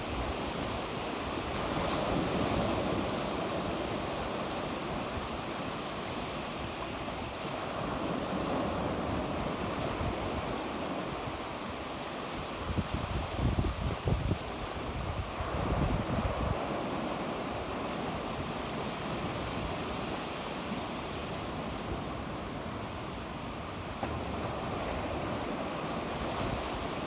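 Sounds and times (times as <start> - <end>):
sea waves breaking on shore: 0.0 - 27.0
wind on microphone: 12.4 - 18.6.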